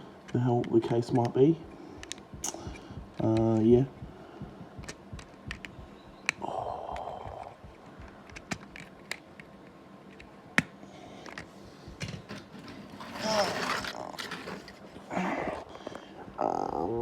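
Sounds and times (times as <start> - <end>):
plastic parts clicking: 0.0 - 3.7, 4.8 - 14.8
plastic scraping rustle: 11.4 - 15.1.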